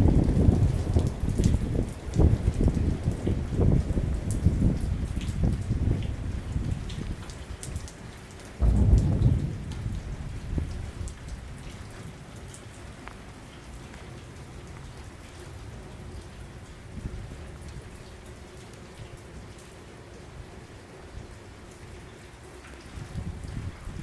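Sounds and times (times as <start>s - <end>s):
thunder rumbling: 0.0s - 7.2s, 8.6s - 12.6s
rain falling: 0.0s - 24.0s.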